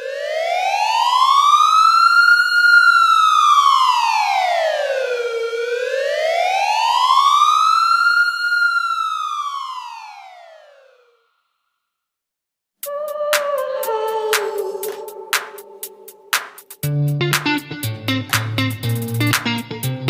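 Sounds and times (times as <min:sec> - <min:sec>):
wailing siren: 0:00.0 - 0:11.2, 0:12.8 - 0:16.2.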